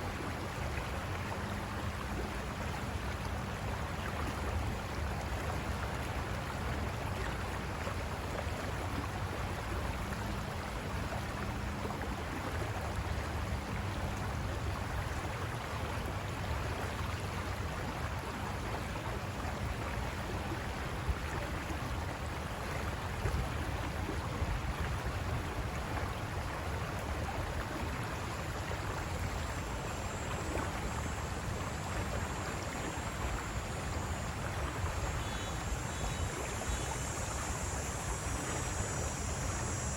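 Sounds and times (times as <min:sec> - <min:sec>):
river water rushing over rocks: 0:00.0 - 0:39.9
faint thin high whine: 0:14.0 - 0:39.9.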